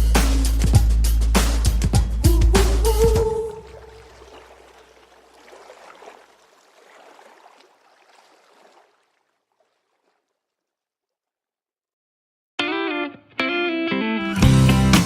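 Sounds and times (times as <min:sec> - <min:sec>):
faint creek water gurgling: 0:02.9 - 0:10.8
small water splashes: 0:03.2 - 0:11.2.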